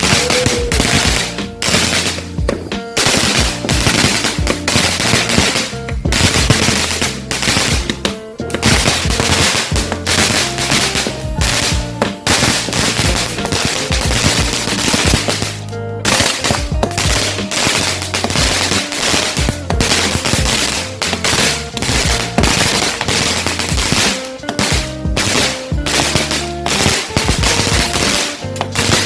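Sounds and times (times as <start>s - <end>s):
faint music: 0.0s - 29.0s
firecrackers cracking: 0.0s - 29.0s.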